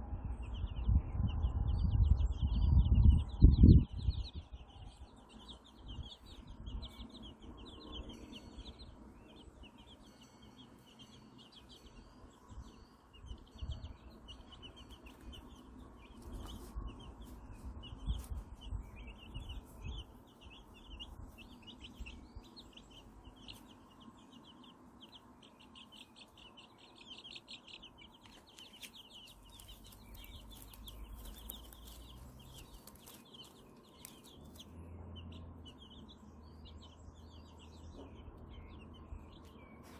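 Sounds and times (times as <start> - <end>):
chicks peeping: 0.2 - 39.9.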